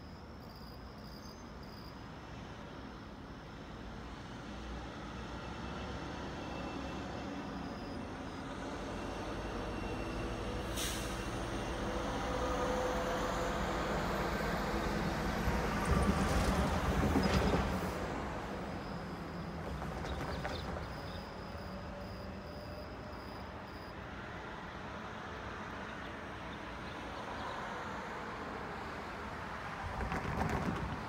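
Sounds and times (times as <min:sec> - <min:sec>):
train rumbling: 0:08.4 - 0:23.4, 0:29.5 - 0:31.0.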